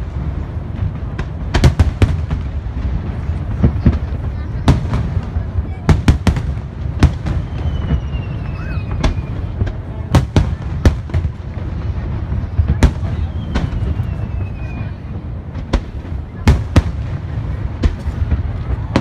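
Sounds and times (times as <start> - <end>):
firework shells booming: 0.0 - 19.0
falling firework whistles: 7.0 - 9.8, 12.3 - 15.9.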